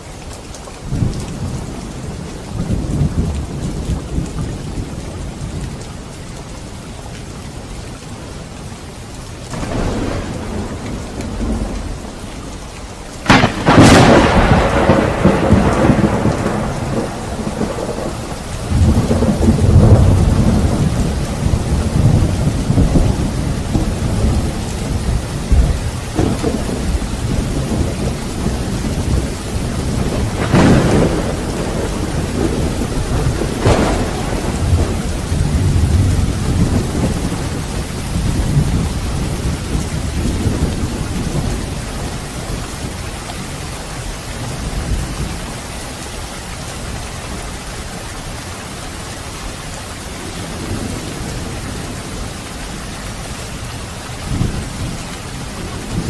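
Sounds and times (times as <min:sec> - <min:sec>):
heavy rain: 0:00.0 - 0:56.0
sharp thunder cracks: 0:09.5 - 0:11.8, 0:13.2 - 0:23.8, 0:28.9 - 0:41.0
rolling thunder: 0:09.5 - 0:12.2, 0:13.2 - 0:43.0.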